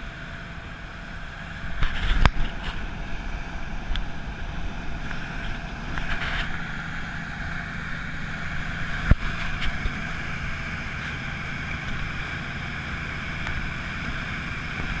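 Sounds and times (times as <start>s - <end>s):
boat engine running: 0.0s - 15.0s
wind noise: 1.6s - 7.2s.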